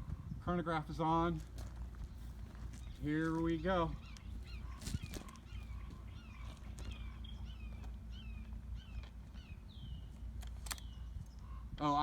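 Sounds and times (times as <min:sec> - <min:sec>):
low background rumble: 0:00.0 - 0:12.0
bird chirping: 0:02.0 - 0:11.8
sharp clicks: 0:10.4 - 0:11.0.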